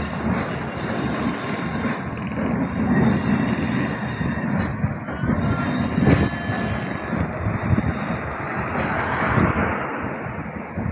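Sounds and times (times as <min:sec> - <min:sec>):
train wheel knocks: 0:00.0 - 0:07.4
train rumbling along track: 0:00.0 - 0:10.9.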